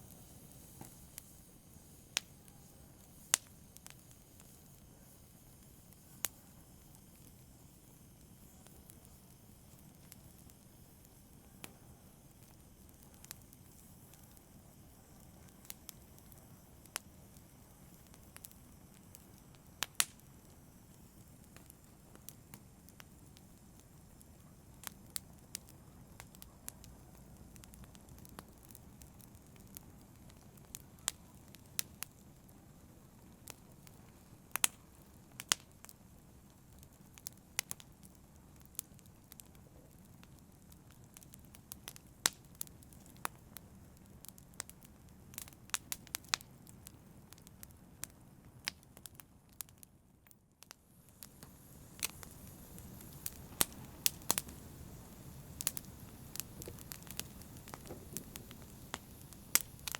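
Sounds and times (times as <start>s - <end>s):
low rumble of burning: 0.0s - 59.9s
wood fire crackling and popping: 0.0s - 59.9s.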